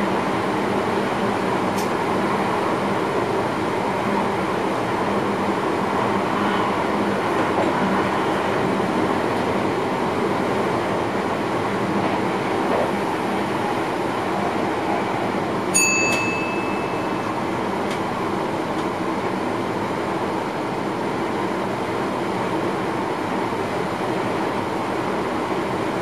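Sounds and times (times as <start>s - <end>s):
train running noise: 0.0s - 26.0s
short high chime: 15.8s - 17.4s.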